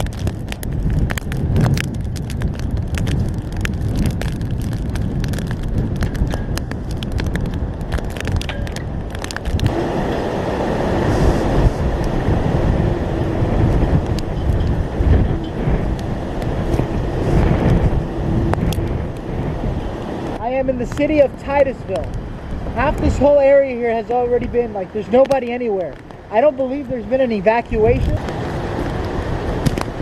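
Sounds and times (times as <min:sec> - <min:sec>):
rain crackling on microphone: 0:00.0 - 0:30.0
wind buffeting microphone: 0:00.0 - 0:30.0.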